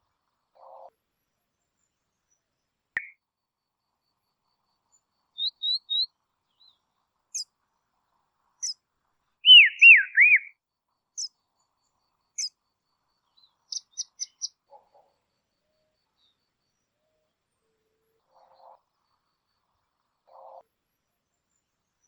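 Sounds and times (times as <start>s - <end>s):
songbird calling: 4.9s - 7.5s, 9.4s - 10.5s, 12.4s - 12.6s, 13.2s - 19.2s.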